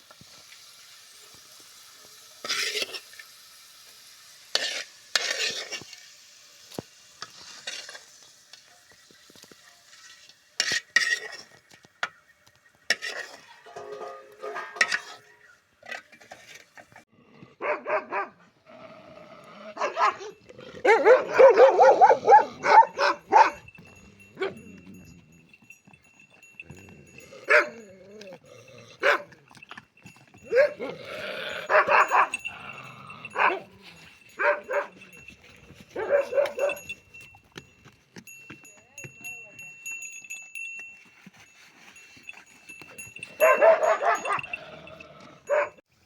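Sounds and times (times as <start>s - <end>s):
dog barking: 17.6s - 18.5s, 19.8s - 23.7s, 27.5s - 27.8s, 29.0s - 29.3s, 30.5s - 31.0s, 31.6s - 32.5s, 33.3s - 33.8s, 34.4s - 35.1s, 36.0s - 37.0s, 43.4s - 44.6s, 45.4s - 45.8s.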